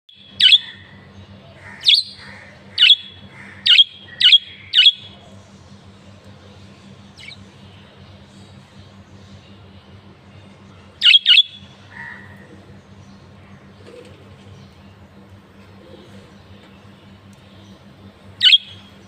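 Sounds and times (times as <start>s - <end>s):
bird chirping: 0.1s - 0.9s, 1.8s - 5.2s, 11.0s - 11.6s, 18.4s - 19.0s.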